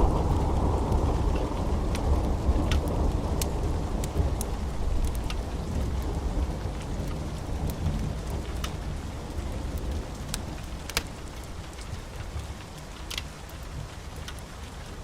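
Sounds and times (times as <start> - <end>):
low rolling thunder: 0.0 - 10.9
fireplace fire crackling: 0.0 - 15.0
steady rain: 0.0 - 15.0.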